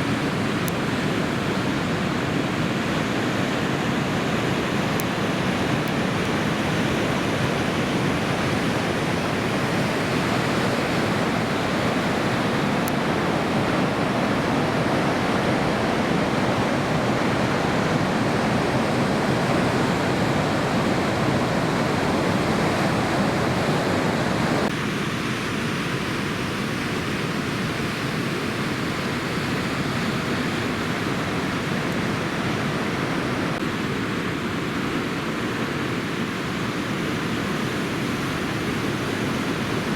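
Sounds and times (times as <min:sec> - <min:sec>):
ocean surf roaring: 0:00.0 - 0:39.9.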